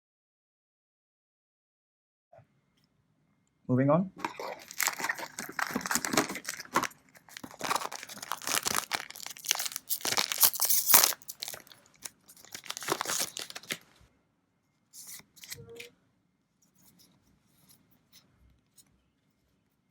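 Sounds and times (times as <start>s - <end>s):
foil wrapper tearing and crinkling: 4.2s - 13.9s.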